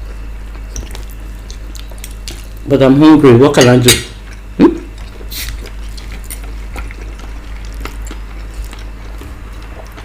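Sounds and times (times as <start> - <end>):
person chewing: 4.2 - 10.0.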